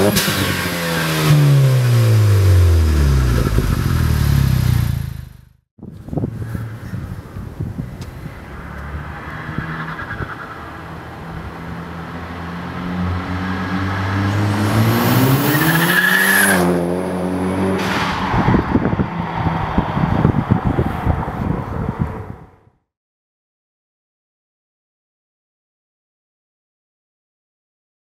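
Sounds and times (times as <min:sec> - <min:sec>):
car engine and exhaust accelerating: 0:00.0 - 0:22.5
rough rushing of car passing: 0:06.0 - 0:22.7.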